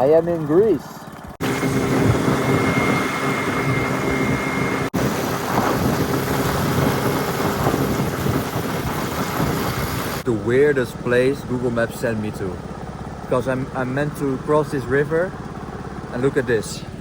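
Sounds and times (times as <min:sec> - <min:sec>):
scooter engine drone: 0:00.0 - 0:17.0
wind buffeting microphone: 0:01.2 - 0:10.3.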